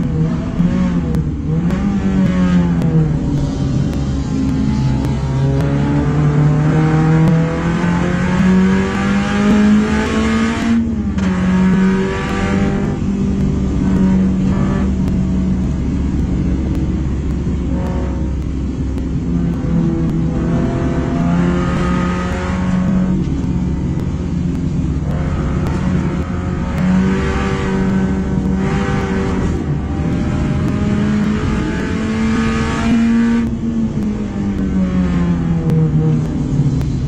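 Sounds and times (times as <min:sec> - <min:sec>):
race car engine revving: 0:00.0 - 0:37.0.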